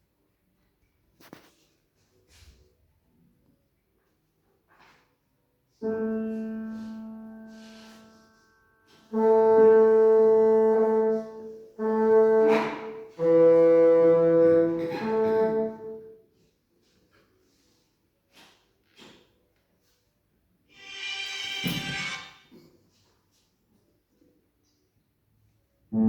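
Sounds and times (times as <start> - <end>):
piano note: 5.8 - 16.0
bassoon long held notes: 5.8 - 16.2.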